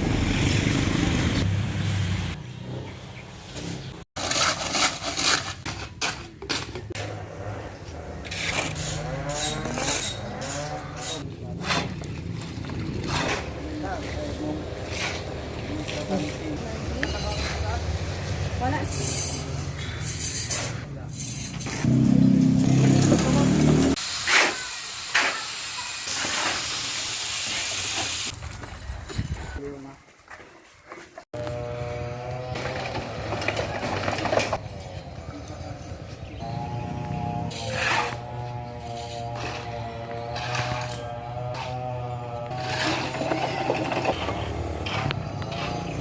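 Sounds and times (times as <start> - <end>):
engine running: 31.4 - 46.0
rough hand scraping strokes: 37.4 - 46.0.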